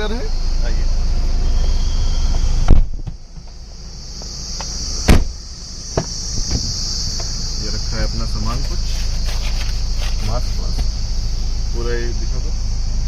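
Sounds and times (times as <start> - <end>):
crickets chirring: 0.0 - 13.0
car door thump: 2.7 - 7.4.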